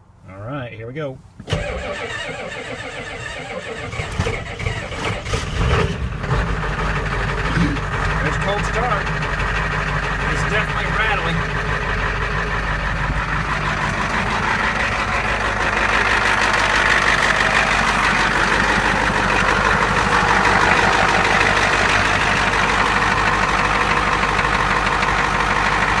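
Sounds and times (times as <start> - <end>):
diesel engine idling: 1.6 - 26.0.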